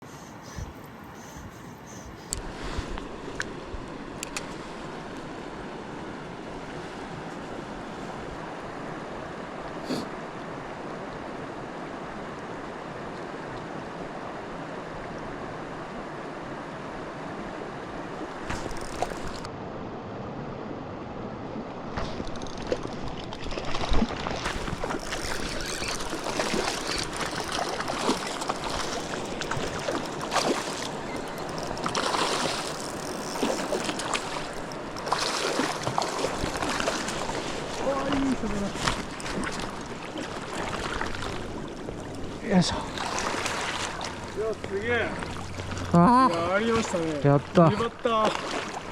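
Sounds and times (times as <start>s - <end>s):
stream water flowing: 0.0s - 48.9s.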